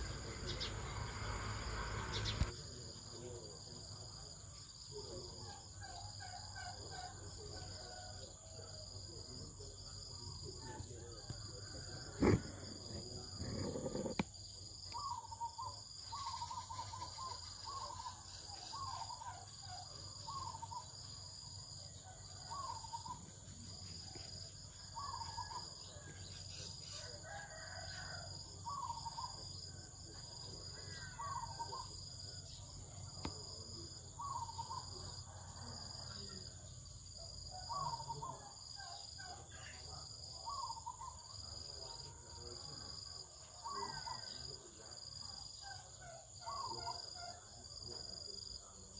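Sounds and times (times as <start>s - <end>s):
other bird calls: 0.0s - 2.6s, 11.6s - 21.1s, 22.3s - 23.4s, 24.8s - 35.6s, 40.4s - 41.4s, 45.6s - 47.5s
high insect drone: 0.0s - 48.9s.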